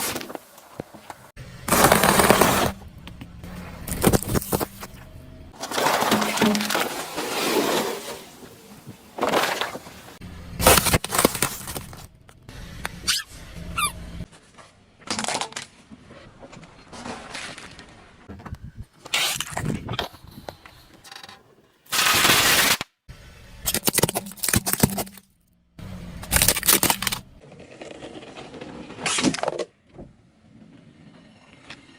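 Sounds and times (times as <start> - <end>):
objects crushed under tyres: 1.7 - 2.8, 3.8 - 12.1, 23.7 - 25.4, 26.2 - 29.9.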